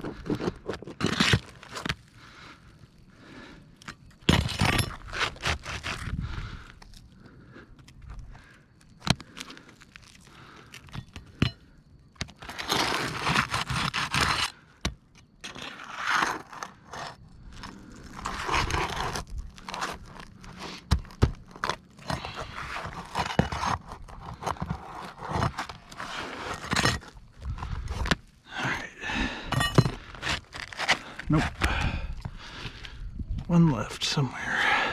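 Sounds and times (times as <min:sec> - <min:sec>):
hand tool scraping and crunching: 0:00.0 - 0:34.9.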